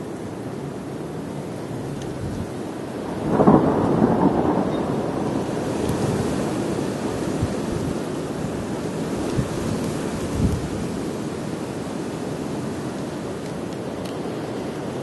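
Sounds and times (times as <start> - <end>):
rolling thunder rumble: 2.1 - 9.7.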